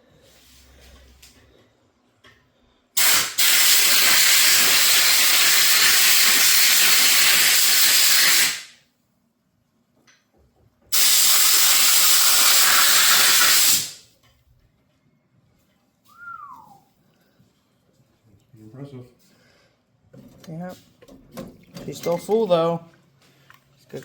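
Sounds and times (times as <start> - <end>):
pressurized nozzle spraying: 3.0 - 8.7, 10.9 - 14.0.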